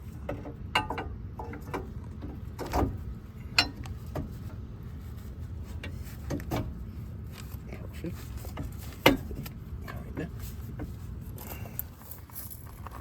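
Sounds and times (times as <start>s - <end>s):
metal exhaust parts clinking: 0.0s - 4.5s, 8.4s - 13.0s
metal clunks: 0.2s - 4.4s.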